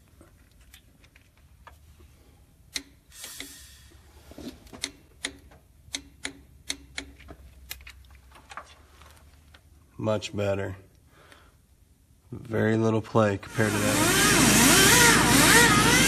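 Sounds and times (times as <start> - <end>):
short hiss: 3.1 - 4.0.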